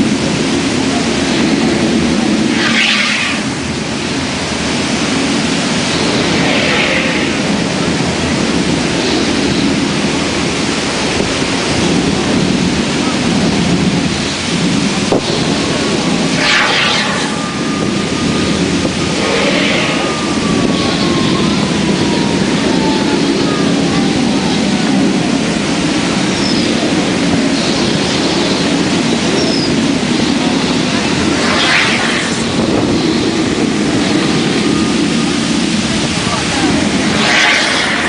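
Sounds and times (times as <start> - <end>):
artificial volcano rumble: 0.0 - 38.0.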